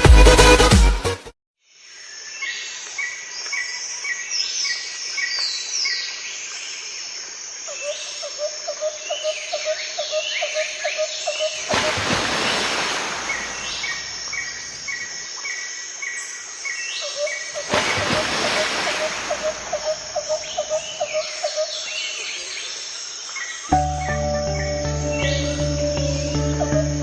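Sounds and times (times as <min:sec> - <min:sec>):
low bird notes: 0:23.7 - 0:27.0.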